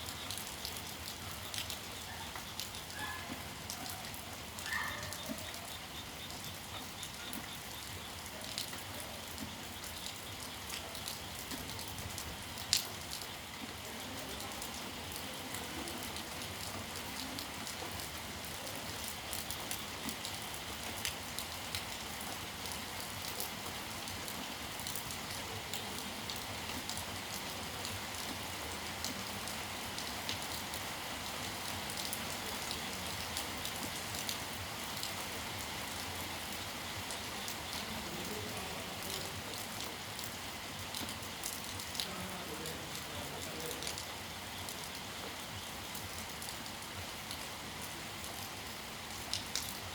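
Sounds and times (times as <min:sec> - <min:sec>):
raindrops ticking: 0:00.0 - 0:23.6, 0:36.4 - 0:46.6
steady rain falling: 0:00.0 - 0:49.9.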